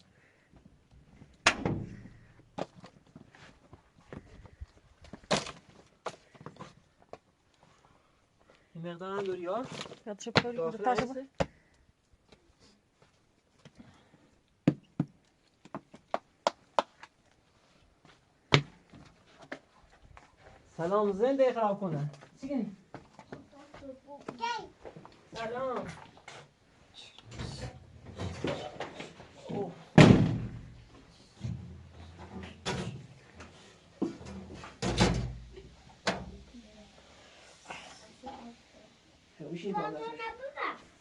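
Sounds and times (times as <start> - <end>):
sharp knocks and thuds: 1.4 - 2.7, 30.0 - 33.0.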